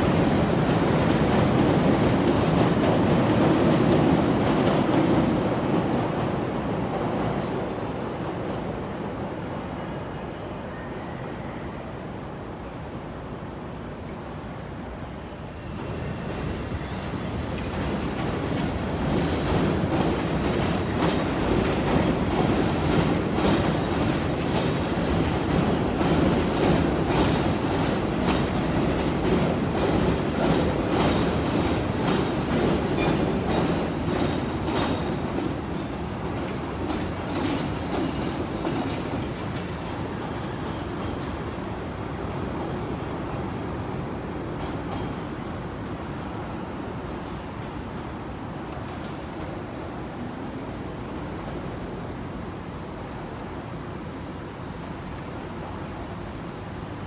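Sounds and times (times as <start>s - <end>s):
elevated train rolling: 0.0s - 57.0s
train wheels clattering: 15.7s - 41.5s.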